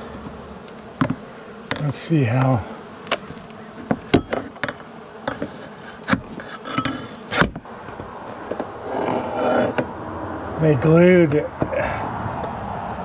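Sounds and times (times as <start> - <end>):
bees buzzing: 0.0 - 13.0
sharp knocks and clicks: 1.0 - 1.9.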